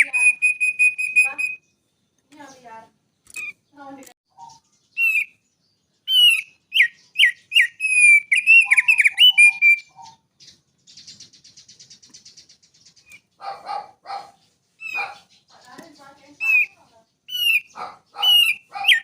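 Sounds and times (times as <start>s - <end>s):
small songbird singing: 0.0s - 19.0s.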